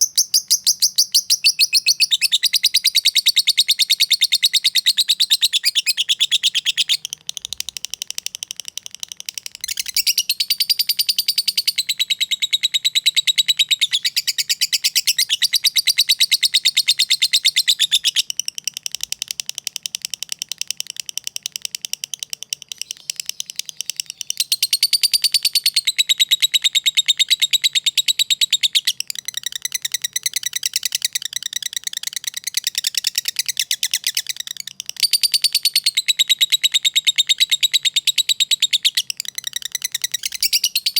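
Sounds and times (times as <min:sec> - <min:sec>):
lovebird chattering song: 0:00.0 - 0:40.9.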